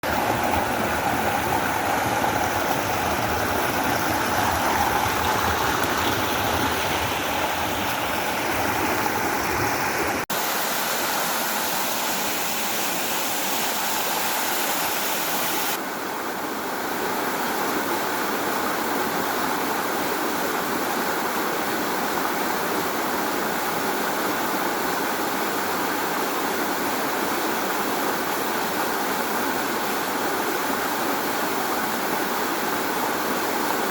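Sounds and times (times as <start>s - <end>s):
waterfall rushing and splashing: 0.0s - 15.8s.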